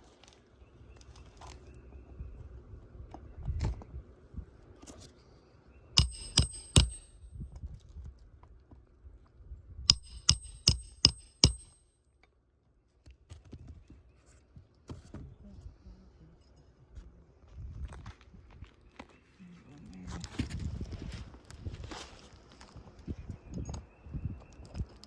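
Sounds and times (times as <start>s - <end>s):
hammer striking roofing nails: 6.0s - 7.3s, 9.9s - 11.9s.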